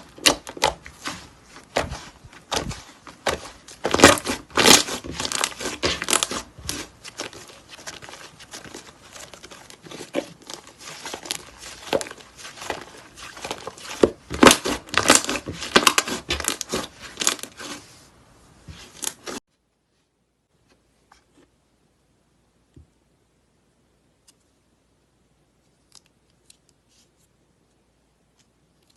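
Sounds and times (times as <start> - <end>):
slime crackling and popping: 3.2 - 8.8, 9.9 - 17.6.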